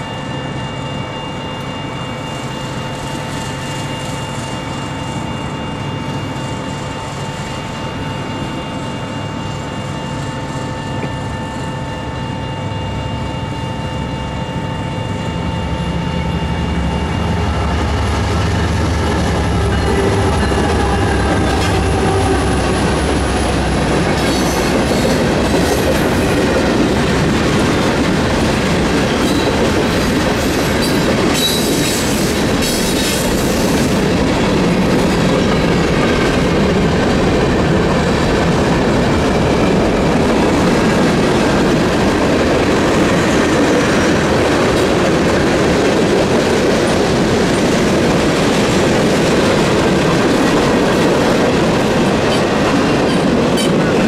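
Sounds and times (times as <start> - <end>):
crossing warning bell ringing: 0.0 - 47.4
train wheels clattering over rail: 18.4 - 54.0.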